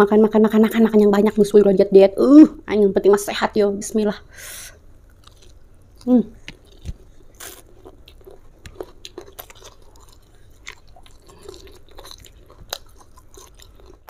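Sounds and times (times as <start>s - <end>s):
close chewing of food: 5.1s - 14.0s.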